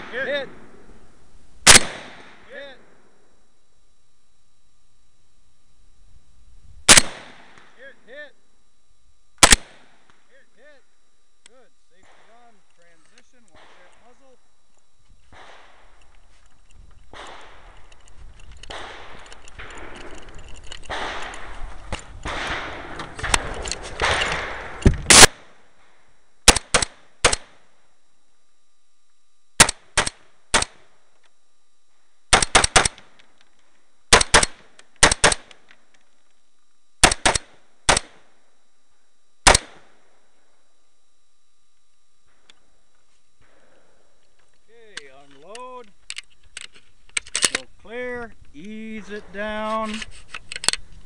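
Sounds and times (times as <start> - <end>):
rifle shots: 1.6 - 3.0, 6.9 - 7.8, 9.4 - 10.1, 13.5 - 14.0, 15.3 - 16.0, 17.1 - 17.8, 18.6 - 27.7, 29.6 - 31.0, 32.3 - 33.2, 34.1 - 35.8, 37.0 - 38.4, 39.4 - 40.0
rustling and handling noise: 41.7 - 51.0.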